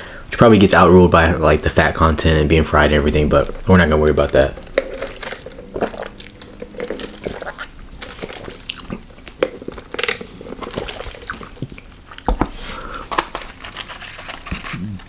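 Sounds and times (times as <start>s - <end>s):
person chewing crunchy food: 3.2s - 15.0s.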